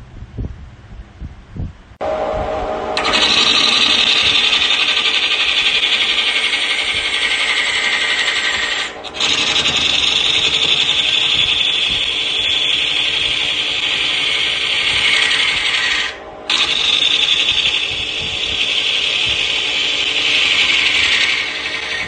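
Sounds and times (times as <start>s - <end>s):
lathe tool scraping wood: 3.0s - 22.0s.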